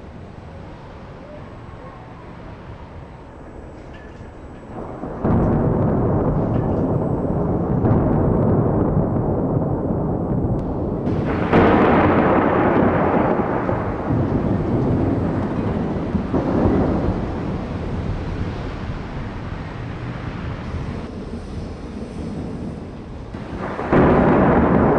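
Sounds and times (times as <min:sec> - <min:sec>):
thunder rumbling: 0:00.0 - 0:24.9
sharp thunder clap: 0:04.8 - 0:21.1, 0:22.4 - 0:24.9.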